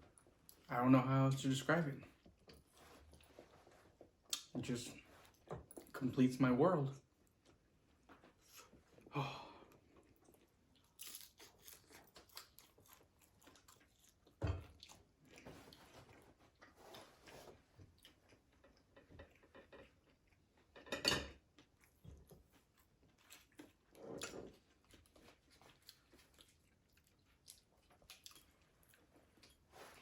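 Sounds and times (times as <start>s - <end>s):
chewing crispy food: 9.7s - 20.8s, 21.4s - 30.0s.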